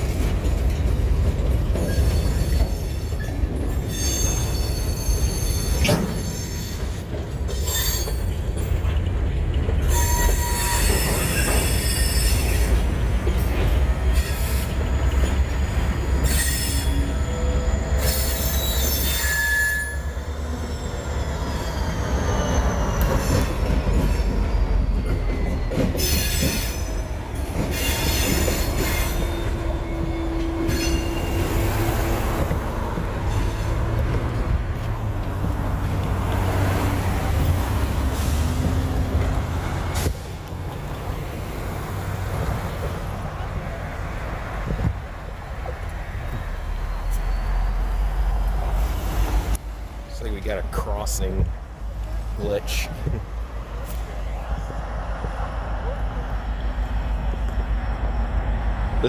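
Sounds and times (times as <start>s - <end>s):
diesel locomotive passing: 0.0s - 59.0s
train rumbling: 0.0s - 59.0s
train wheels squealing: 1.7s - 9.0s, 9.8s - 33.9s, 46.0s - 49.6s.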